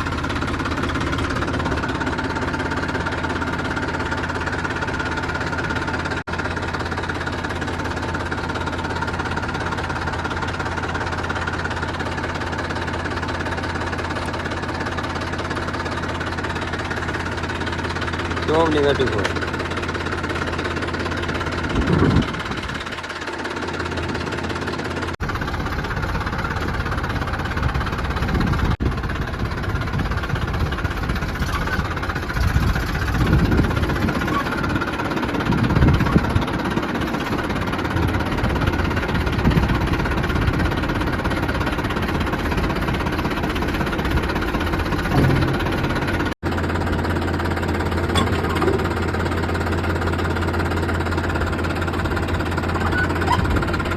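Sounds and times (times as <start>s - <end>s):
diesel tractor engine knocking: 0.0s - 53.9s.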